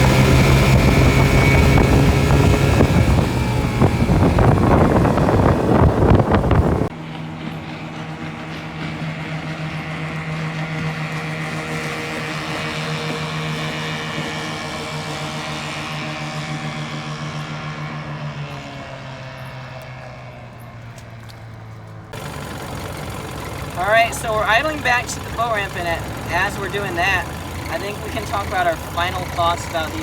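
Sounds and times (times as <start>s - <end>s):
outboard motor running: 0.0s - 20.6s, 22.1s - 30.0s.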